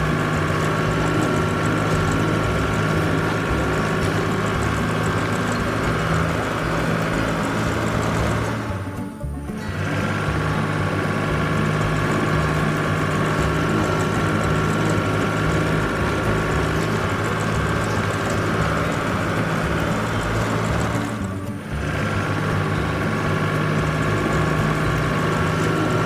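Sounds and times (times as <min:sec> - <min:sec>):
cartoon heavy vehicle engine idling: 0:00.0 - 0:26.0.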